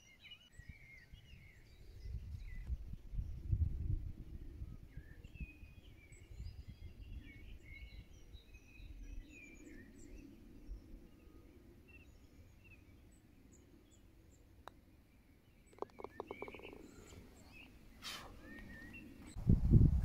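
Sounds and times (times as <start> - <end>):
low rumble of outdoor noise: 0.0 - 20.0
birds chirping and trilling: 4.5 - 19.4.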